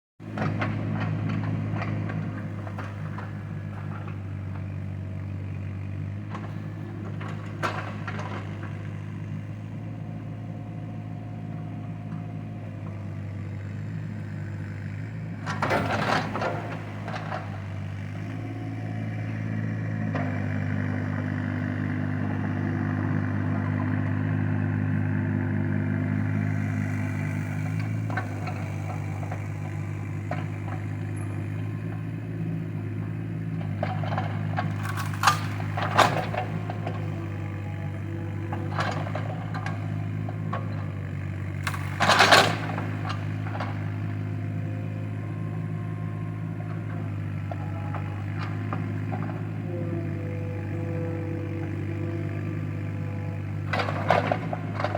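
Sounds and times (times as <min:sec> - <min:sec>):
engine running: 0:00.2 - 0:54.9.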